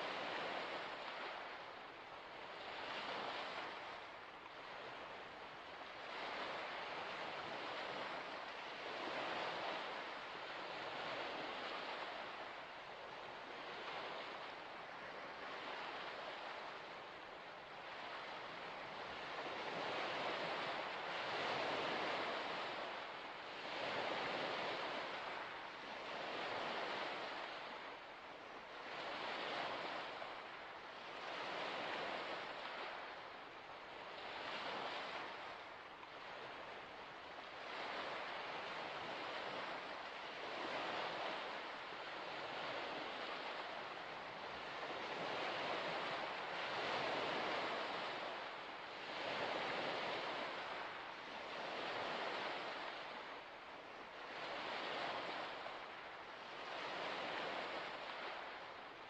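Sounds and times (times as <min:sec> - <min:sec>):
small waves washing onto shore: 0:00.0 - 0:59.0.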